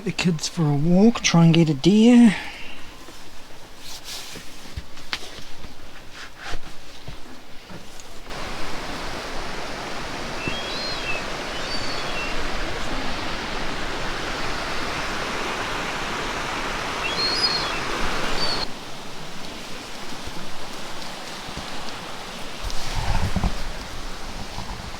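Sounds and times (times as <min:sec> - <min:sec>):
running water hiss: 0:08.2 - 0:24.9
high bird chirps: 0:08.3 - 0:18.7.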